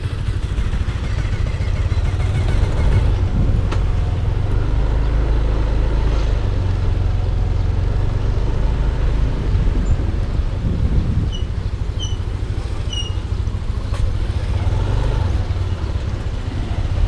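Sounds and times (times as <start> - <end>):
scooter engine and road noise: 0.0 - 17.0
wind rumble on microphone: 2.0 - 5.4, 6.0 - 17.0.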